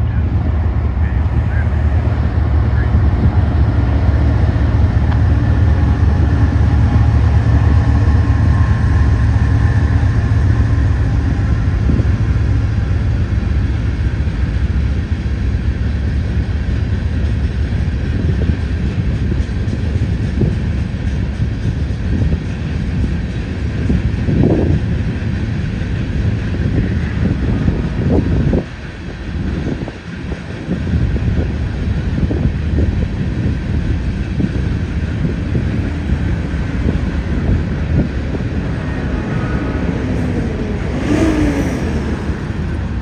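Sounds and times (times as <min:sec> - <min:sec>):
locomotive engines rumbling: 0:00.0 - 0:43.0
train wheels clacking over rail joints: 0:11.4 - 0:26.9.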